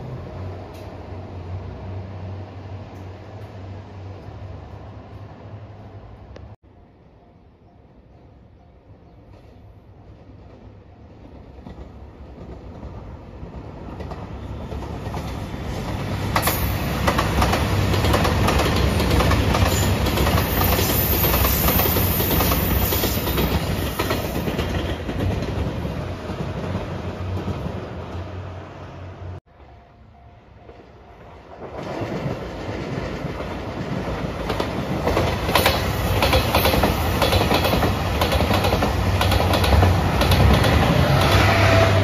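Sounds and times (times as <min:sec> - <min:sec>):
train wheels clacking over rail joints: 0:14.0 - 0:26.8, 0:31.6 - 0:41.8.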